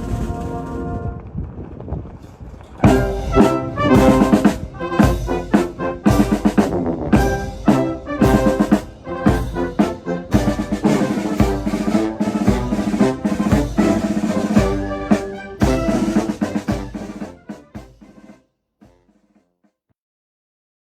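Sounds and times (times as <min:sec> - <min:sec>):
military band playing: 0:00.0 - 0:01.2, 0:02.8 - 0:19.2.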